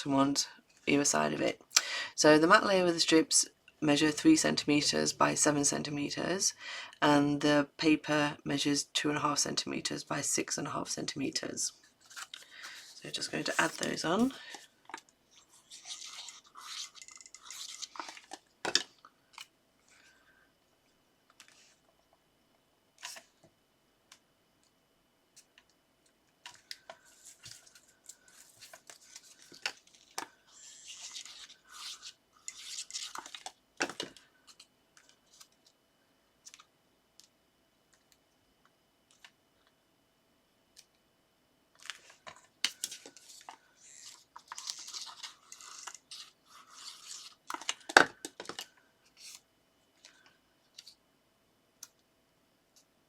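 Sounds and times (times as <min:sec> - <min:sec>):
paper rustling and scratching: 0:12.0 - 0:14.6, 0:15.3 - 0:18.4, 0:26.5 - 0:33.5, 0:42.8 - 0:47.8.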